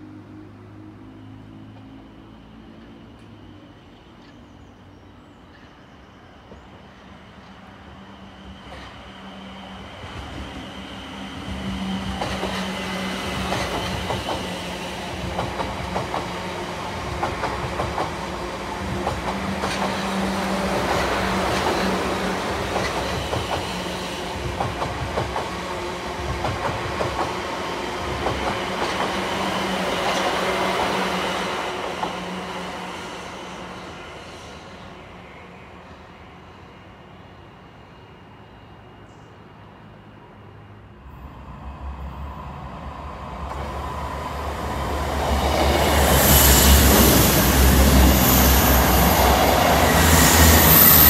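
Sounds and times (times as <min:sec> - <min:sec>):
train low hum: 0:00.0 - 0:51.0
train wheels clicking over rail joints: 0:12.0 - 0:31.0.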